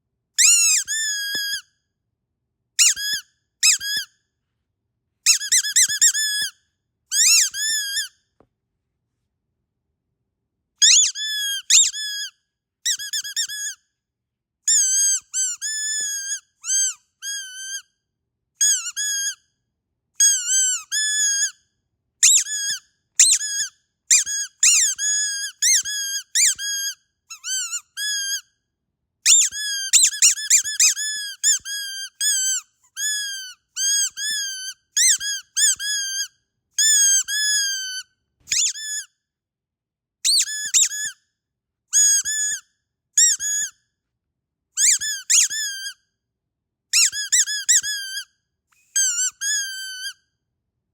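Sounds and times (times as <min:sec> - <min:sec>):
squeaky dog toy squeaking: 0:00.4 - 0:01.7, 0:02.8 - 0:04.2, 0:05.2 - 0:08.2, 0:10.8 - 0:13.9, 0:14.7 - 0:18.0, 0:18.6 - 0:19.5, 0:20.2 - 0:21.6, 0:22.2 - 0:28.6, 0:29.2 - 0:39.2, 0:40.2 - 0:41.2, 0:41.9 - 0:43.8, 0:44.8 - 0:46.0, 0:46.9 - 0:50.3.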